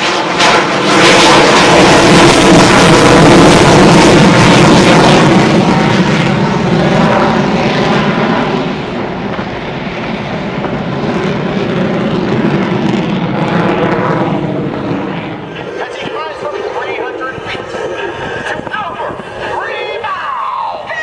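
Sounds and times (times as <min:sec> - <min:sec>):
airplane flying past: 0:00.0 - 0:21.0.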